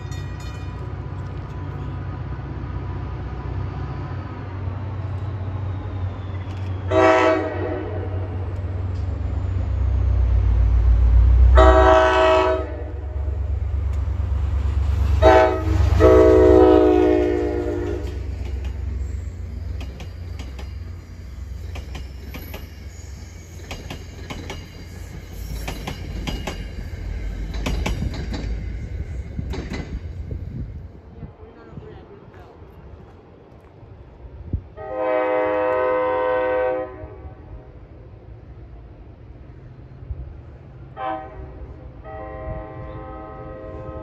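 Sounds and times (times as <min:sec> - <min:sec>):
train rumble: 0:00.0 - 0:44.0
locomotive horn blasts: 0:06.9 - 0:08.4, 0:11.5 - 0:13.2, 0:15.2 - 0:18.3, 0:34.8 - 0:37.4, 0:41.0 - 0:44.0
wheels clicking over rail joints: 0:17.8 - 0:30.6.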